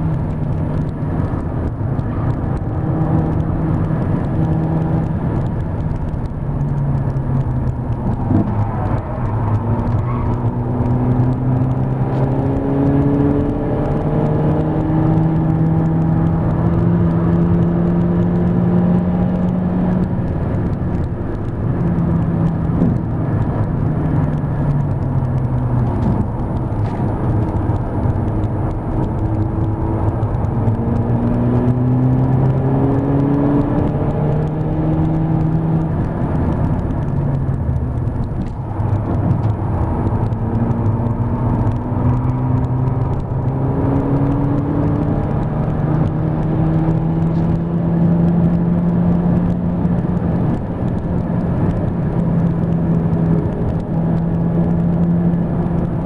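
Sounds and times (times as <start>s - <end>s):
car engine revving: 0.0s - 56.0s
tyre and road noise: 0.0s - 56.0s.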